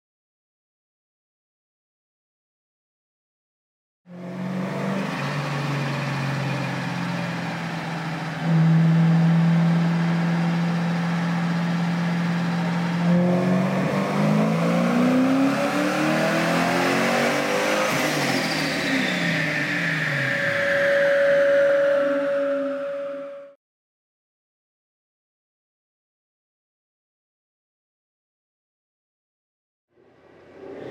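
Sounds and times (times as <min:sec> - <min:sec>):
car engine revving on dyno: 0:04.1 - 0:22.9
high whine sliding down: 0:16.2 - 0:23.6, 0:30.0 - 0:30.9.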